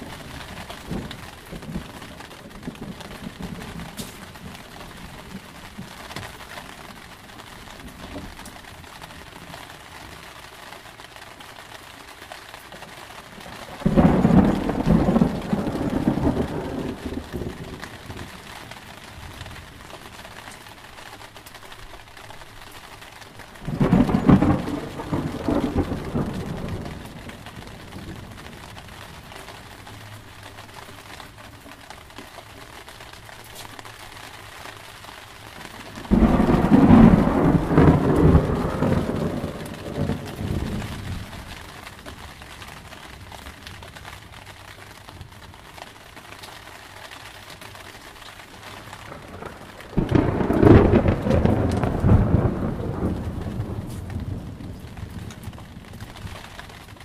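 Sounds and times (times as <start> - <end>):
thunderclaps: 0.0 - 10.2, 12.6 - 20.4, 23.2 - 31.4, 35.6 - 44.3, 48.3 - 57.0
steady rain: 0.0 - 57.0.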